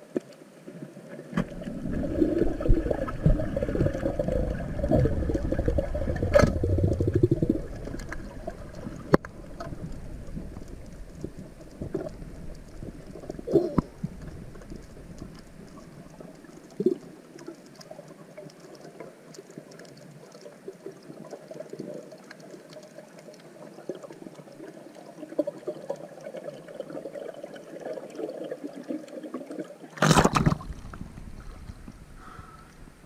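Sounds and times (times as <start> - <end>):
water: 0.0 - 33.0
faint crackling ticks: 7.8 - 26.5.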